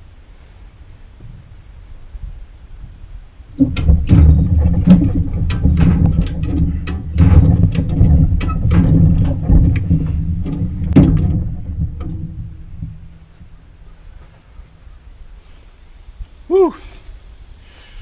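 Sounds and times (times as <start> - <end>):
low rumble: 3.6 - 14.0.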